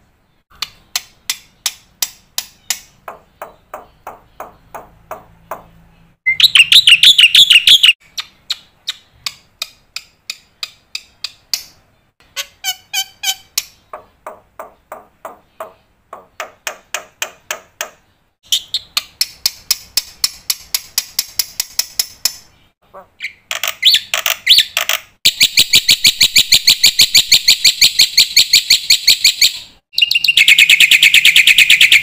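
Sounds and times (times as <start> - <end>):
bird singing repeated notes: 0.2 - 32.0
bird harsh chattering: 6.3 - 9.1, 12.3 - 13.8, 23.0 - 27.1.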